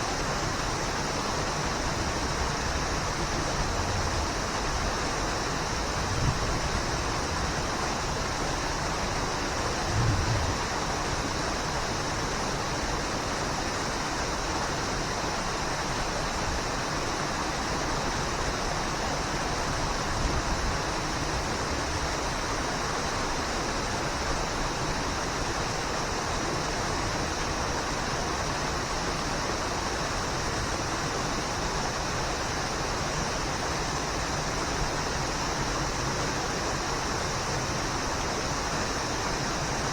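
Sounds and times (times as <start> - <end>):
brief low thumps: 9.8 - 11.0.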